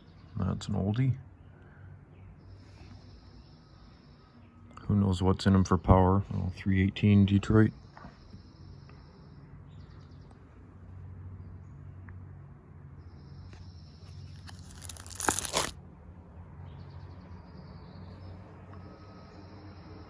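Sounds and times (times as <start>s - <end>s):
crinkling rustle: 14.1s - 15.8s.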